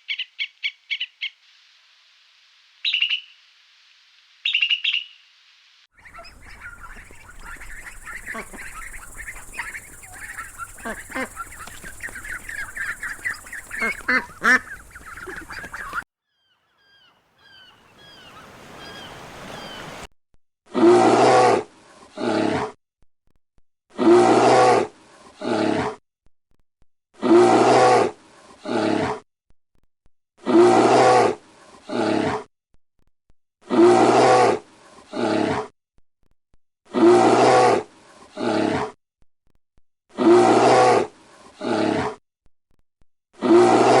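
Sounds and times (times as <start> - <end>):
faint peeping: 6.0 - 16.0
bear roaring: 24.0 - 26.0, 27.2 - 29.2, 33.7 - 35.7, 36.9 - 39.0.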